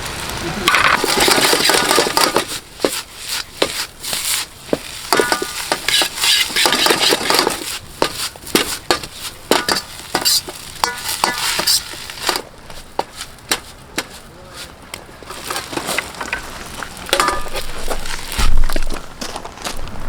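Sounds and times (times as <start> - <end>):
rice sizzling: 0.0 - 19.1
ladle clanking against a wok: 0.7 - 3.0, 4.7 - 14.6, 15.2 - 18.1.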